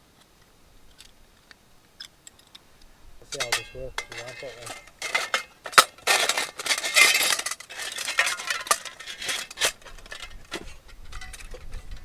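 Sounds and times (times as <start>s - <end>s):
metal clicks: 3.3s - 12.0s
metal clinks and clatters: 3.3s - 12.0s.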